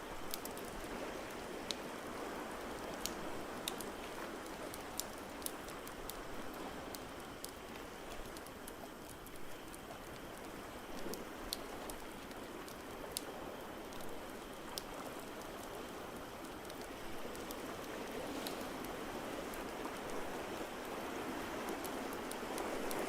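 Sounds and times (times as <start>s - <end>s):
rain-like hiss: 0.0s - 23.0s.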